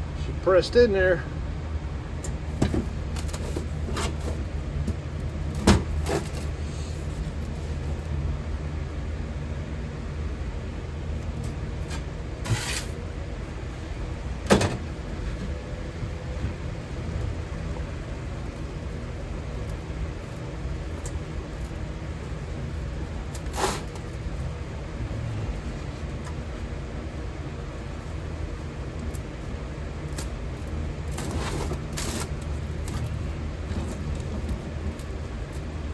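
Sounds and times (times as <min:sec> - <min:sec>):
steady low rumble: 0:00.0 - 0:05.6, 0:24.1 - 0:31.1.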